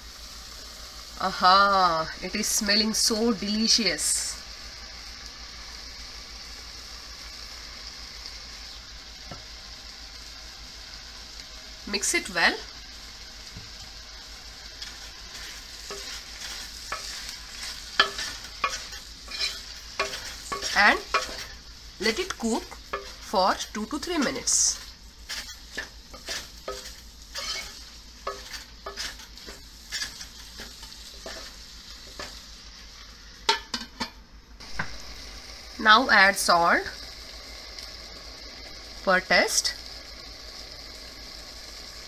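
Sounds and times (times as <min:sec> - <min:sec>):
food sizzling in a pot: 0:00.0 - 0:42.0
wooden spoon scraping: 0:14.8 - 0:32.4.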